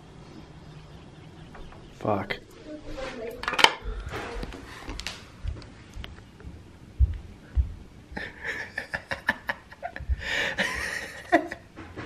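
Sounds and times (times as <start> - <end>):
low thumps: 5.4 - 8.3, 9.8 - 10.9.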